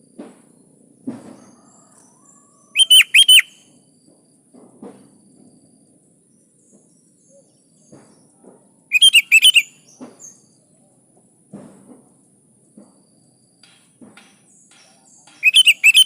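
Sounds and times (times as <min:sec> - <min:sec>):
bird chirping calls: 0:01.4 - 0:03.7, 0:06.6 - 0:10.7, 0:14.5 - 0:16.0.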